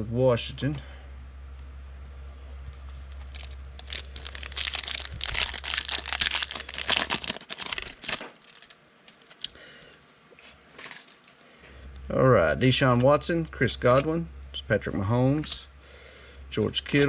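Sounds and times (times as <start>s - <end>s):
foil wrapper tearing and crinkling: 2.9s - 9.5s.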